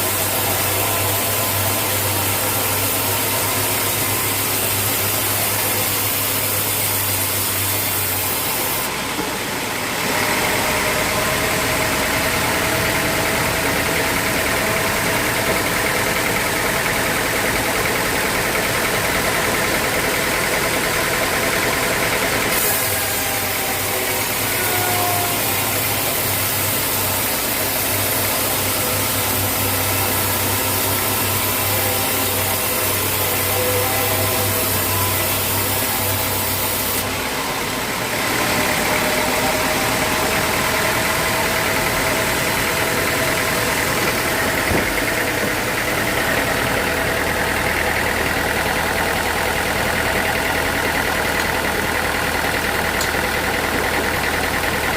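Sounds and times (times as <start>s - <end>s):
bright hiss: 0.0s - 8.9s, 22.5s - 37.0s
sawmill machinery humming: 0.0s - 54.9s.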